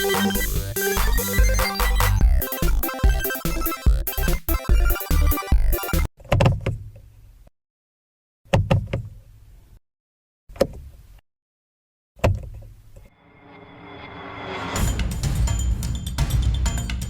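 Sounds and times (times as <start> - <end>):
music: 0.0 - 6.1, 14.1 - 17.0.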